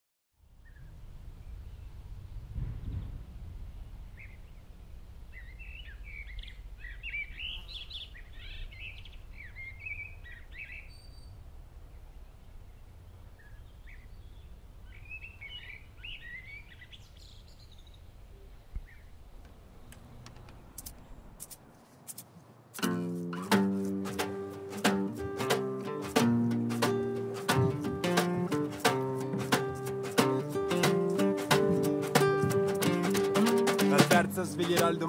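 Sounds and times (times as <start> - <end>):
low outdoor rumble: 0.4 - 21.4
songbirds chirping and trilling: 3.8 - 21.4.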